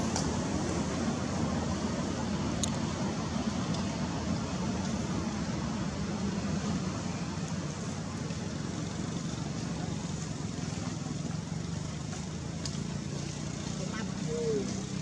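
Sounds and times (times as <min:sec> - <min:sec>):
constant hiss: 0:00.0 - 0:15.0.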